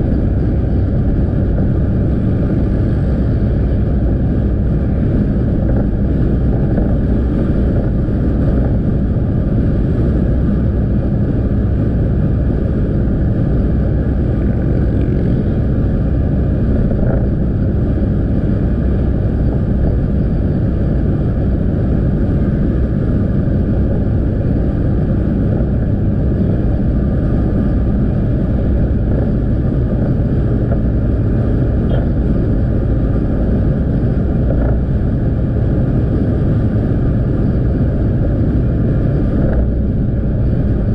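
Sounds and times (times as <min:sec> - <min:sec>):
road noise: 0:00.0 - 0:40.9
wind rushing over microphone: 0:00.0 - 0:40.9.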